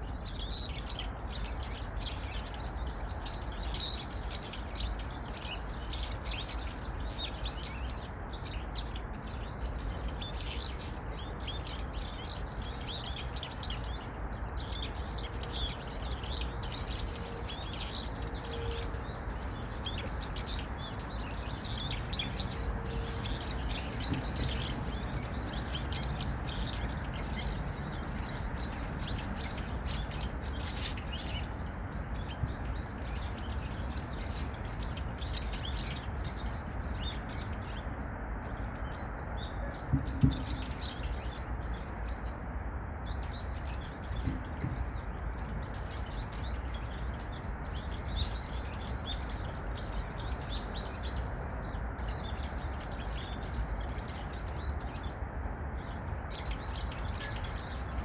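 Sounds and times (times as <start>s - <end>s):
small birds chirping: 0.0s - 58.0s
knock: 39.9s - 40.6s, 44.2s - 44.8s.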